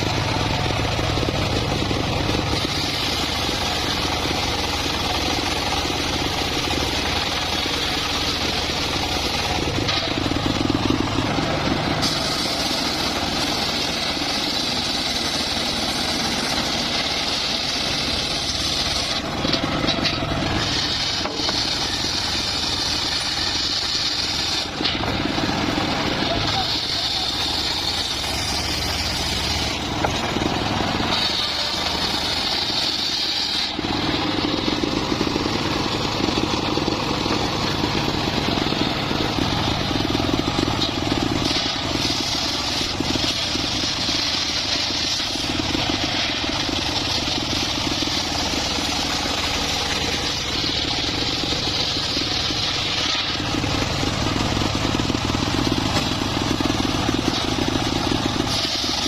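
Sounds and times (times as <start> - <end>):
saw blade cutting log: 0.0 - 59.0
sawmill engine drone: 0.0 - 59.0.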